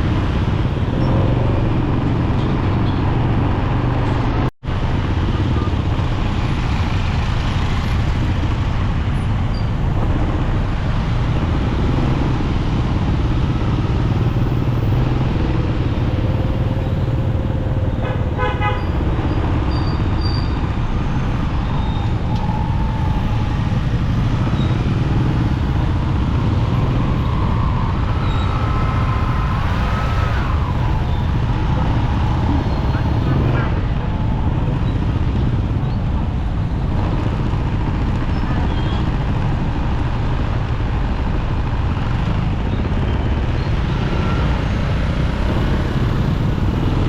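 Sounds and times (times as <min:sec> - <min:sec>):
motorcycle engine rumble: 0:00.0 - 0:47.0
vehicle horn toot: 0:18.0 - 0:19.0.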